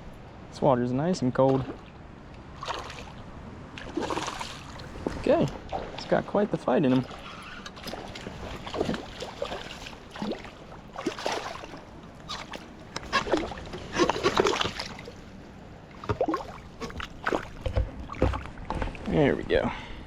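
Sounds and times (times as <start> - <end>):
fish thrashing water: 2.6 - 3.2, 3.8 - 6.2, 7.0 - 15.2, 16.0 - 19.0.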